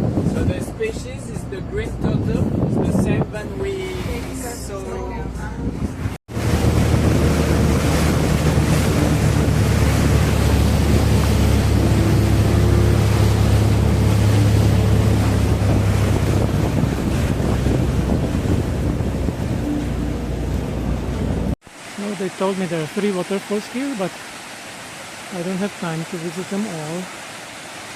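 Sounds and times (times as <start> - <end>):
wind on microphone: 0.0 - 21.6
boat engine drone: 0.0 - 27.9
water rushing: 0.0 - 27.9.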